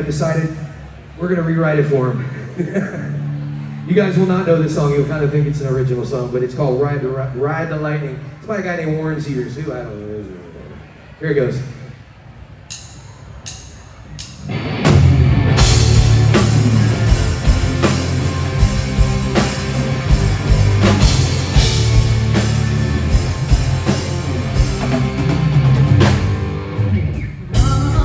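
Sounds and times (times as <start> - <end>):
live rock band playing: 14.4 - 28.0.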